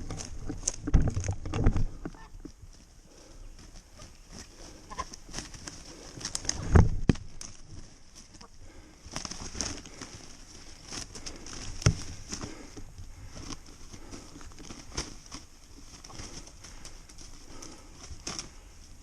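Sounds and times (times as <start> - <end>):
thumps: 0.0 - 2.6
rustling: 0.0 - 19.0.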